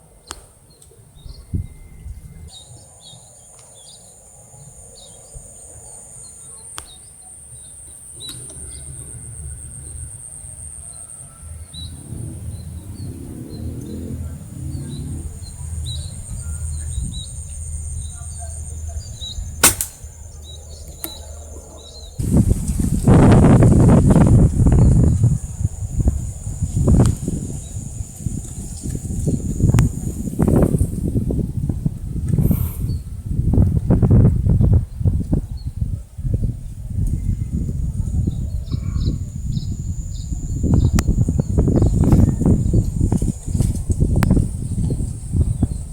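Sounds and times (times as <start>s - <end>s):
small birds chirping: 11.7s - 22.4s, 37.1s - 45.9s
handling noise rumble: 11.9s - 18.1s
air rifle crack: 19.6s - 20.2s
insect buzz: 38.8s - 42.8s.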